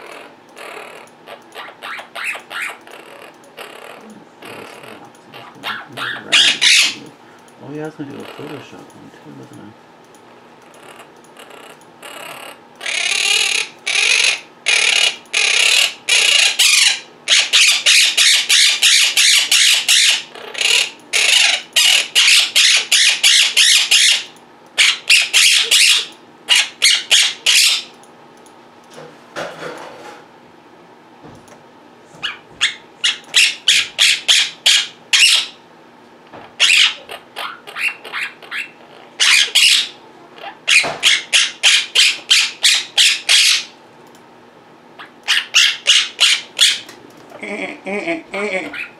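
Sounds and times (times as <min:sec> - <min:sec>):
parrots squawking: 0:00.0 - 0:07.1, 0:08.1 - 0:08.8, 0:10.3 - 0:27.9, 0:32.2 - 0:35.6, 0:36.4 - 0:43.8, 0:45.0 - 0:46.9, 0:48.3 - 0:48.9.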